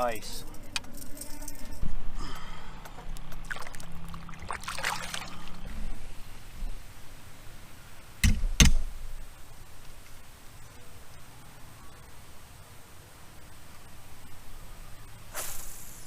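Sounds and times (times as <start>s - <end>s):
low steady hum: 0.0s - 16.0s
water splashing and trickling: 3.2s - 6.1s.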